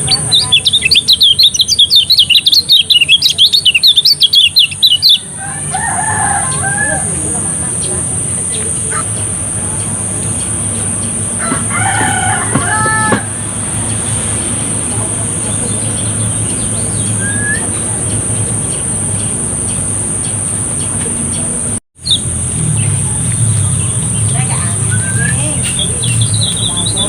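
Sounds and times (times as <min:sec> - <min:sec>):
bird chirps: 0:00.0 - 0:07.1, 0:07.7 - 0:27.0
rooster crowing: 0:05.2 - 0:07.5, 0:11.4 - 0:14.2
low hum: 0:07.0 - 0:27.0.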